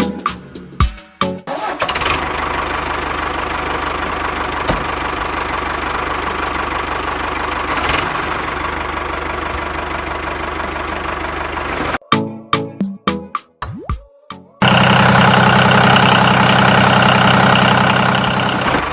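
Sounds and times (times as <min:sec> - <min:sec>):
small engine clattering: 0:01.5 - 0:12.0, 0:14.6 - 0:18.9.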